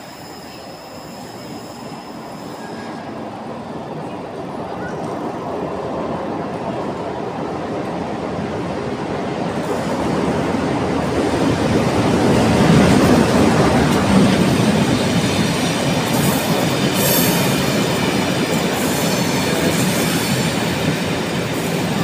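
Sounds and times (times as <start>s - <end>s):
high-pitched wheel squeals: 0.0s - 3.1s
diesel locomotive passing: 0.0s - 22.0s
train wheels on rails: 0.0s - 22.0s.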